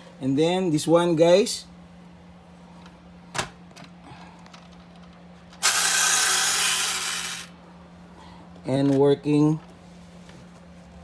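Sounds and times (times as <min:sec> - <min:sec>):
toy truck mechanism whirring: 0:05.6 - 0:07.5.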